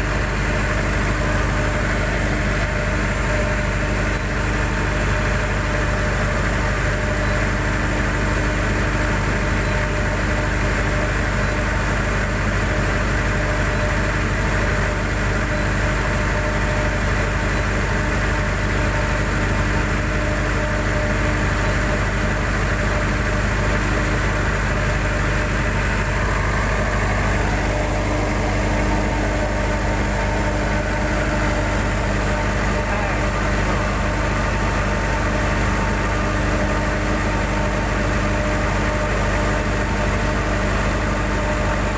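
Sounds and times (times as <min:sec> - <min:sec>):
diesel engine running: 0:12.4 - 0:41.9.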